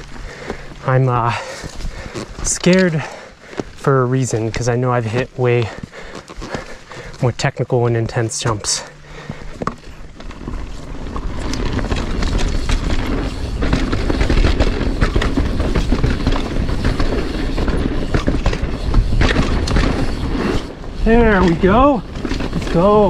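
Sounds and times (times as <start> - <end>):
bike tyres rumbling over dirt: 0.0 - 23.0
bike rattling clicks: 8.3 - 23.0.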